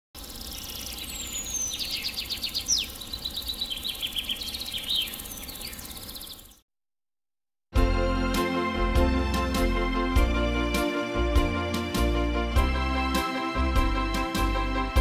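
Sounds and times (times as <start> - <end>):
songbirds singing: 0.2 - 6.6.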